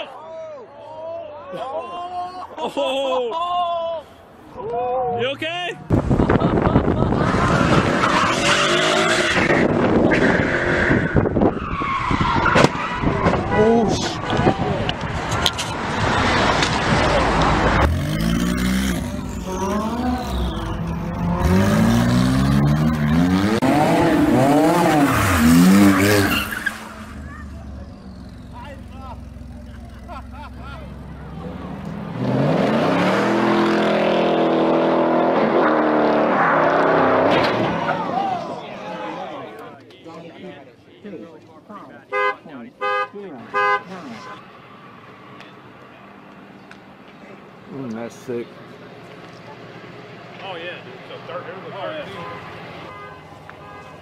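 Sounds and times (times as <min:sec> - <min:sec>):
car tyres screeching: 0:06.5 - 0:38.9
car engine running: 0:26.9 - 0:31.9.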